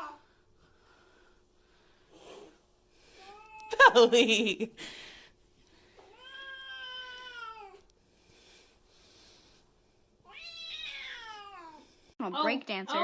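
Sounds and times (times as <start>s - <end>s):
cat meowing: 6.1s - 7.8s, 10.3s - 11.8s.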